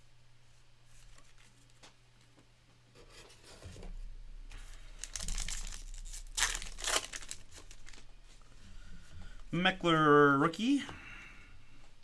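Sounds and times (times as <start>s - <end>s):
wrapper tearing and crinkling: 4.6s - 8.1s.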